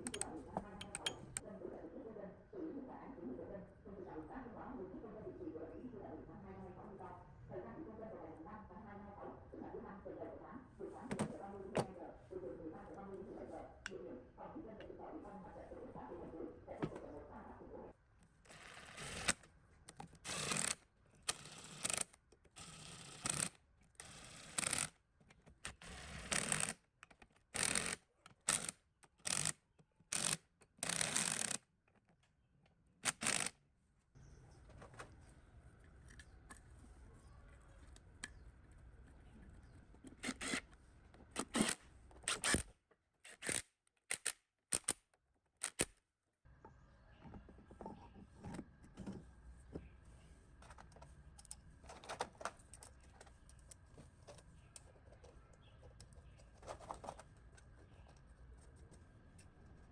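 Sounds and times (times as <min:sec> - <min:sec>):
clicks and taps: 0:00.0 - 0:01.4.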